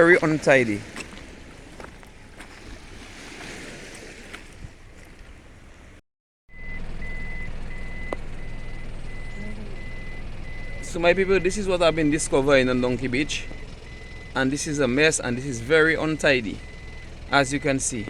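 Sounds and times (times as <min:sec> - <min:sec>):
low engine hum: 0:00.0 - 0:18.0
outdoor noise: 0:00.0 - 0:18.0
reversing alarm beeping: 0:06.5 - 0:18.0.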